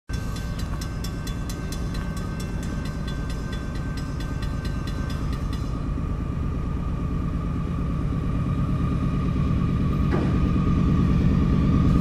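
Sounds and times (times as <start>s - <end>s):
rapid metallic ringing: 0.1s - 6.8s
diesel locomotive rumble: 0.1s - 12.0s.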